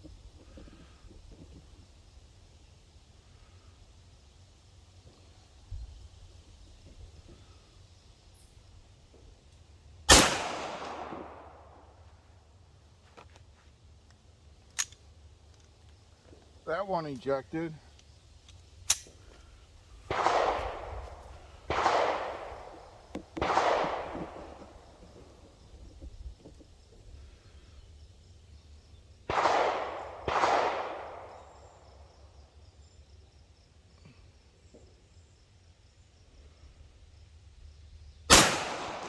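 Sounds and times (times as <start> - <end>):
echoing gunshots: 10.1 - 11.8, 20.1 - 25.2, 29.3 - 31.8, 38.3 - 39.0
sharp click: 18.9 - 19.1.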